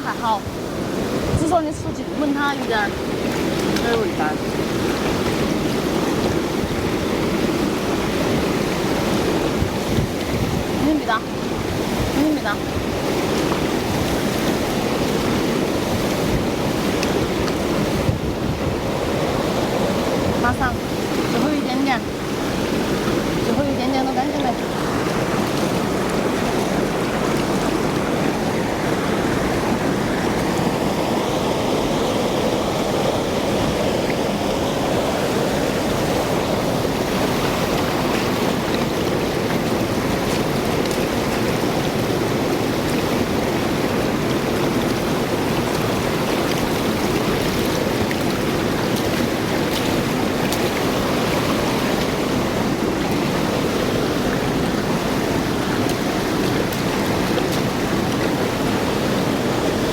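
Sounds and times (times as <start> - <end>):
running water spraying: 1.1 - 10.0.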